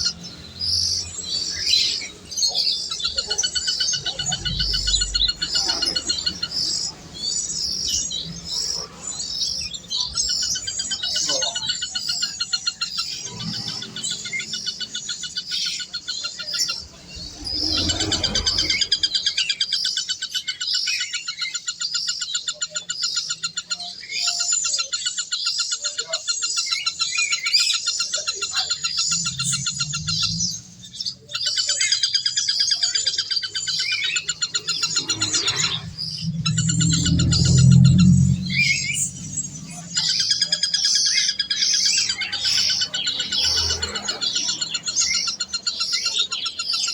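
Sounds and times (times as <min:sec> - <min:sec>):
birds chirping in chorus: 0:00.0 - 0:46.9
low hum: 0:16.7 - 0:19.5, 0:28.5 - 0:31.3, 0:33.8 - 0:41.0.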